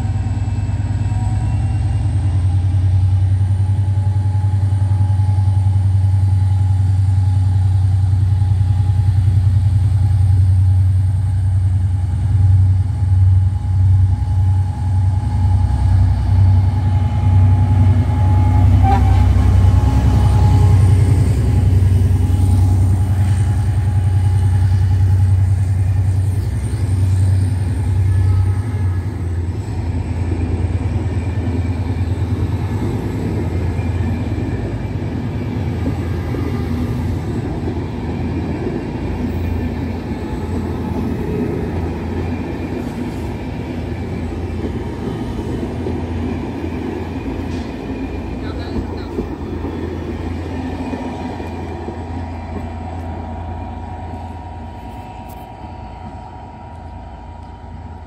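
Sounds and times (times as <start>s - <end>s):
diesel locomotive engine droning: 0.0s - 58.0s
train coaches rumbling past: 0.0s - 58.0s.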